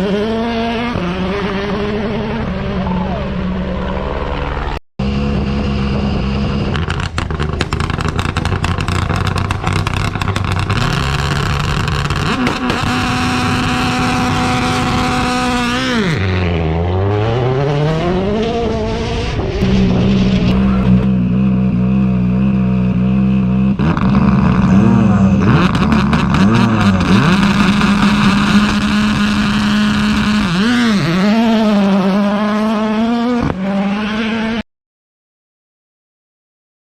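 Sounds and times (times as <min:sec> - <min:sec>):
car engine revving: 0:00.0 - 0:34.6
exhaust crackles and pops: 0:06.3 - 0:15.9, 0:18.6 - 0:31.2.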